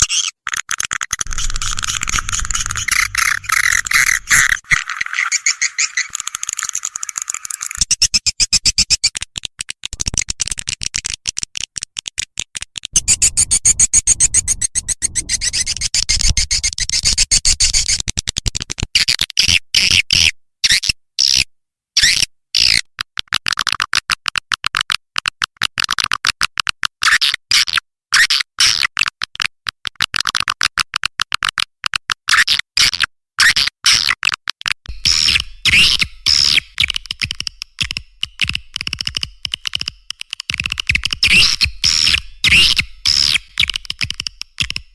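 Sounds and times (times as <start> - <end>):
high chirps dropping in pitch: 1.3 - 4.6
swiftlet chattering calls: 1.3 - 7.8, 34.9 - 44.6.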